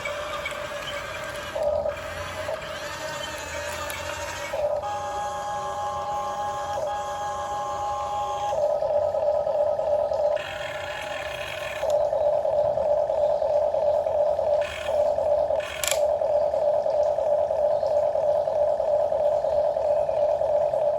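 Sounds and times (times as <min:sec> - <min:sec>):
electric motors whirring: 0:00.0 - 0:20.9.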